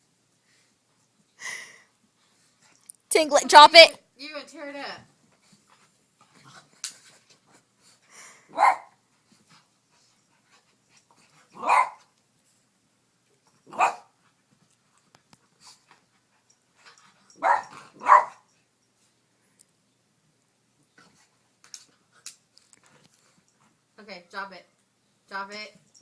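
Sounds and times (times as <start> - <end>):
dog barking: 8.5 - 8.9, 11.6 - 12.0, 13.7 - 14.1, 17.4 - 18.4.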